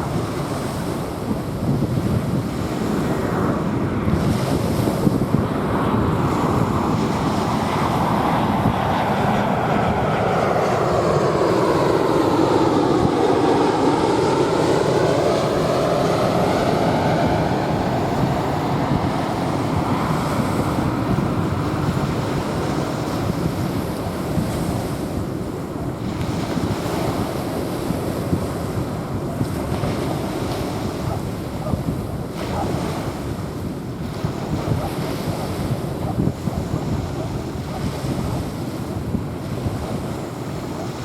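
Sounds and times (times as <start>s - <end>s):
jet airliner passing over: 0.0s - 41.0s
small waves washing onto beach: 0.0s - 41.0s.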